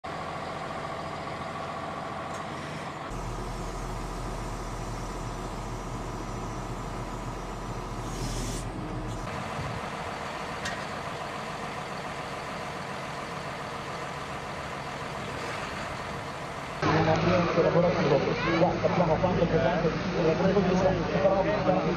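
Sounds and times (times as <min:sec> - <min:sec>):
heavy farm machinery engines: 0:00.0 - 0:21.9.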